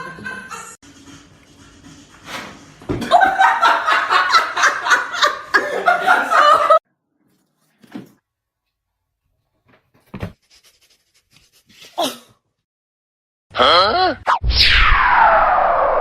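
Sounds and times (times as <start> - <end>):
person laughing hard: 3.0 - 6.8.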